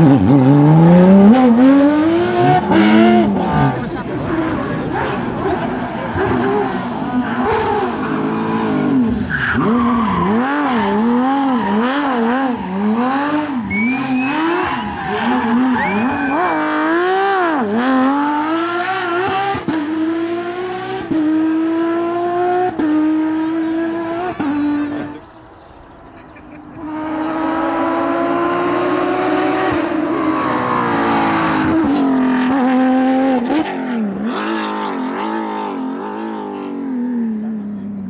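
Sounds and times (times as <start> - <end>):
sports car engine revving: 0.0 - 37.9
tyre squeal: 9.2 - 16.9.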